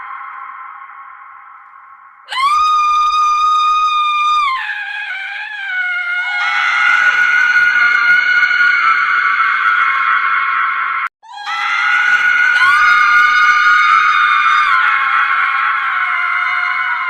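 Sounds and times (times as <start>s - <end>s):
higher scream: 0.0s - 17.0s
woman screaming: 2.3s - 9.3s, 11.2s - 17.0s.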